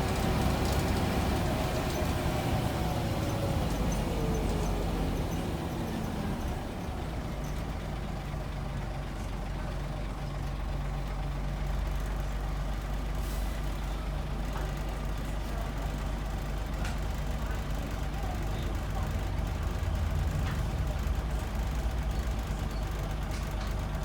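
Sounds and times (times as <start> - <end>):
bus engine droning: 0.0 - 24.0.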